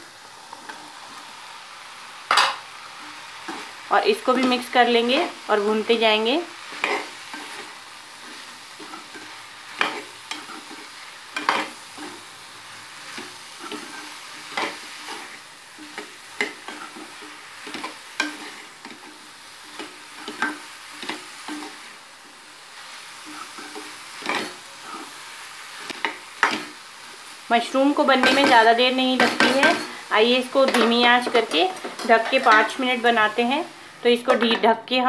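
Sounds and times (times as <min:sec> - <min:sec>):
vegetables sizzling in a pan: 0:00.0 - 0:35.0
spatula scraping and knocking pan: 0:06.7 - 0:12.3, 0:13.0 - 0:22.4, 0:23.2 - 0:26.8, 0:28.0 - 0:33.2.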